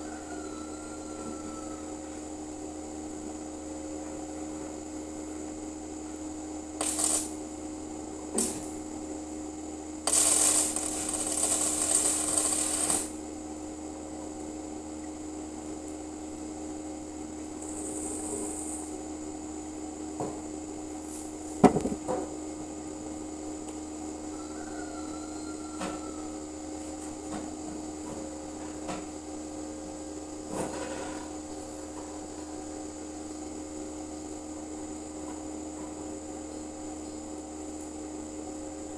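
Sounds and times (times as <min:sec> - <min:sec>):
steady electrical hum: 0:00.0 - 0:38.9
arc welding crackle: 0:06.6 - 0:09.1, 0:10.0 - 0:13.4.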